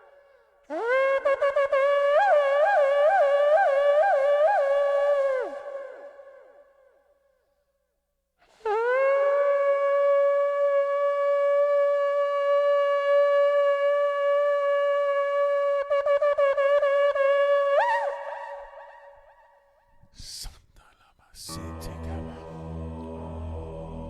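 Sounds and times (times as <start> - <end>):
shofar blast: 21.5 - 24.0.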